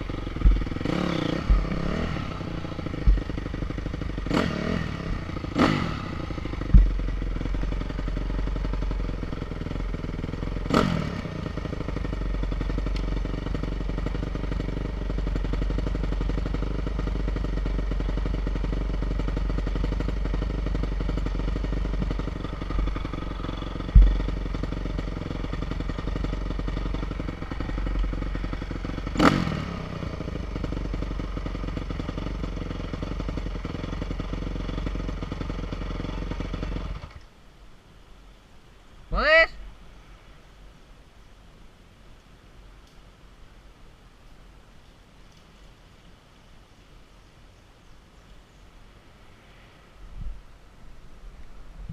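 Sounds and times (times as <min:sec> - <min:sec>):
sharp thumps: 0:00.0 - 0:04.3, 0:06.5 - 0:07.4, 0:22.0 - 0:24.6
motorcycle engine running: 0:00.0 - 0:37.2.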